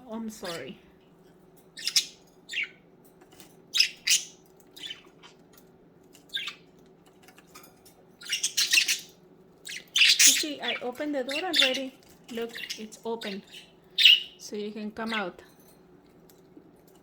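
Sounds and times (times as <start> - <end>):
budgerigars chirping and squawking: 0.2 - 0.8, 1.8 - 5.5, 6.2 - 6.7, 7.3 - 14.4, 15.0 - 15.4.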